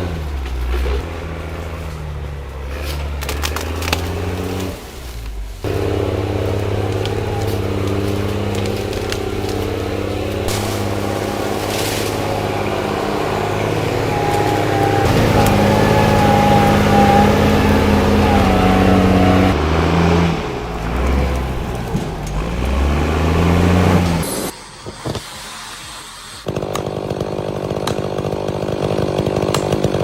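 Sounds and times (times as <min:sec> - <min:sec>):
engines revving: 0:00.0 - 0:30.0.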